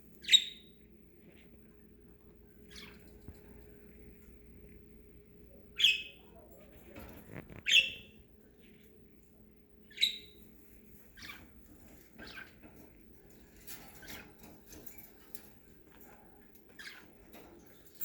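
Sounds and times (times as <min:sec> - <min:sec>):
budgerigars chirping: 0:00.2 - 0:00.8, 0:02.7 - 0:03.1, 0:05.8 - 0:06.2, 0:07.6 - 0:08.2, 0:09.9 - 0:10.5, 0:11.1 - 0:12.7.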